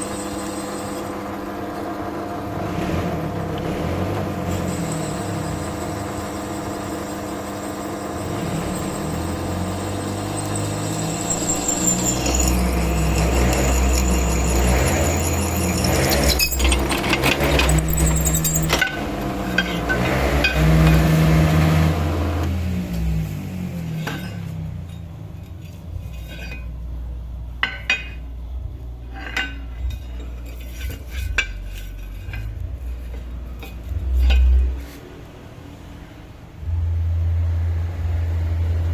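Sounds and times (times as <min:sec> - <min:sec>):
drill motor running: 0:04.4 - 0:19.8
metal clinks and taps: 0:10.3 - 0:21.0.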